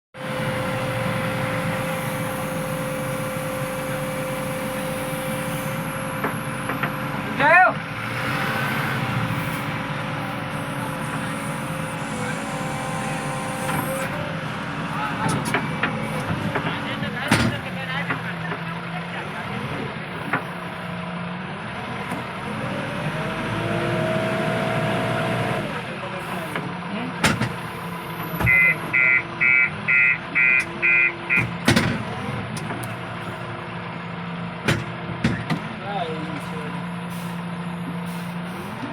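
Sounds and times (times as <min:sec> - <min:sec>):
diesel machinery engine running: 0:00.2 - 0:38.9
steady high whine: 0:09.3 - 0:15.3.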